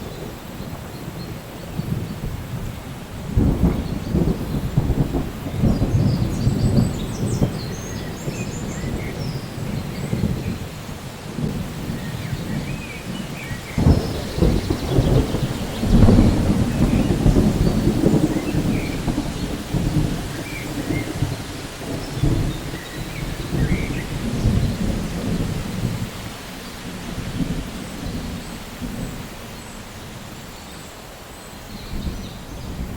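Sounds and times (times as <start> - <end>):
thunder rumbling: 0.0 - 30.5, 31.8 - 32.9
steady rain: 0.0 - 32.9.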